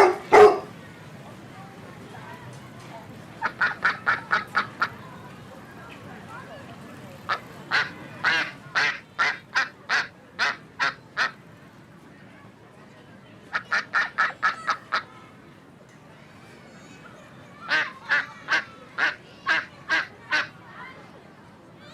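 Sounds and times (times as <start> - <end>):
waterfowl calling: 3.4 - 4.9, 7.3 - 11.4.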